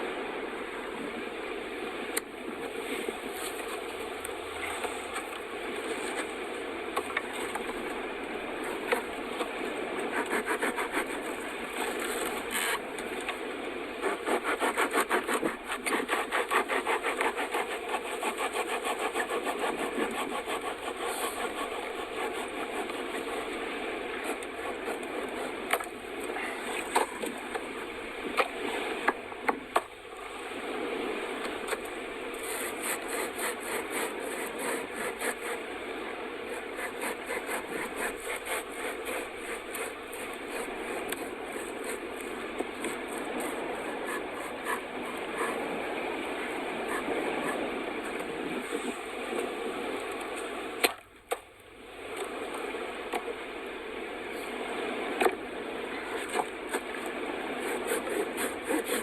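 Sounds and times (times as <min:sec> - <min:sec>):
hand saw rasping wood: 0:08.7 - 0:12.8, 0:14.0 - 0:23.6, 0:24.2 - 0:27.3, 0:32.4 - 0:35.6, 0:36.5 - 0:45.8, 0:46.8 - 0:48.2, 0:57.6 - 0:59.0.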